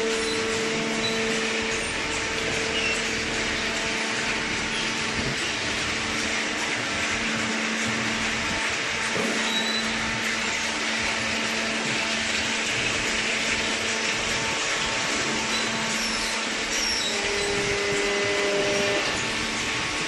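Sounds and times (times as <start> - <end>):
hydraulic power unit humming: 0.0 - 20.0.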